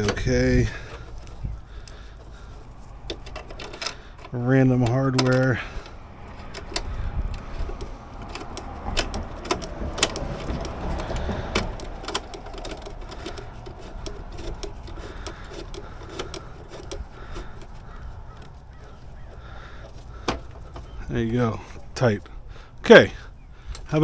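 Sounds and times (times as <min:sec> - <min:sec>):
ratchet wrench clicking: 0:00.0 - 0:20.8
metal clinks and knocks: 0:00.0 - 0:21.0.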